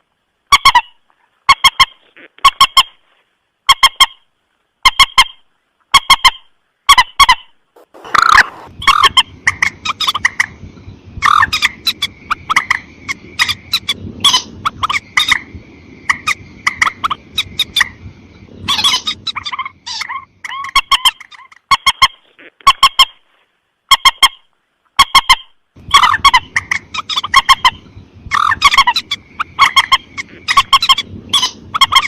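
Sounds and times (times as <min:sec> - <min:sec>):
rail bird sharp calls: 0:04.8 - 0:22.2, 0:25.0 - 0:32.0
low background rumble: 0:07.5 - 0:21.6, 0:25.7 - 0:32.0.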